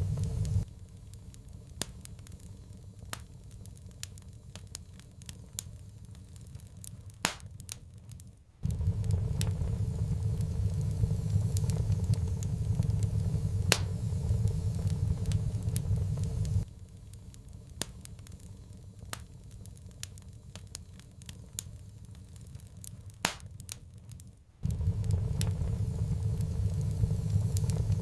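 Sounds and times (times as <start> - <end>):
low rumble: 0.0 - 0.8, 8.6 - 16.7, 24.6 - 28.0
wood fire crackling: 0.0 - 28.0.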